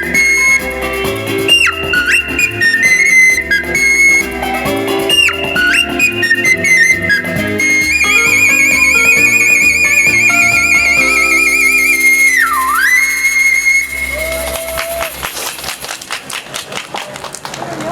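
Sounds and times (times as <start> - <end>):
ocarina with vibrato: 0.0 - 15.9
sustained backing chords: 0.0 - 16.2
sharp claps: 14.0 - 17.9.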